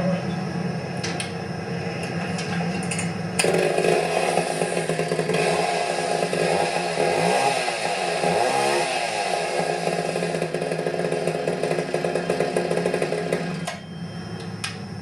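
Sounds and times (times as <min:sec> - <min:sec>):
two-stroke chainsaw running: 0:03.4 - 0:13.7.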